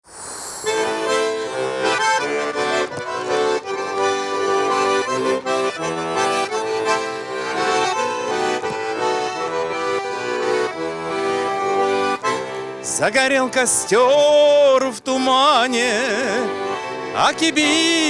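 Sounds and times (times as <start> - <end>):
button accordion melody: 0.6 - 18.0.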